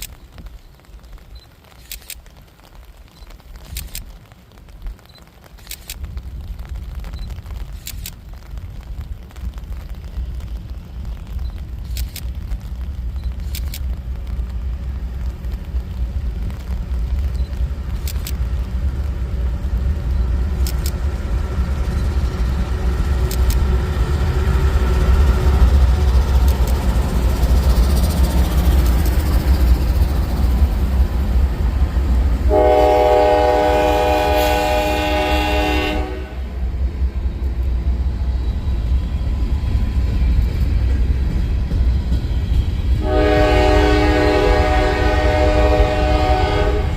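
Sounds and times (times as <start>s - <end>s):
diesel locomotives rumbling: 4.7s - 46.9s
train air horn: 32.5s - 36.6s, 43.0s - 46.9s.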